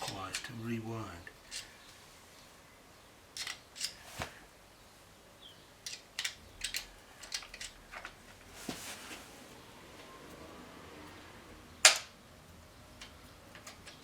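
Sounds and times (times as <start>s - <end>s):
rustle: 0.0s - 14.0s
metallic clicks and taps: 13.0s - 14.0s.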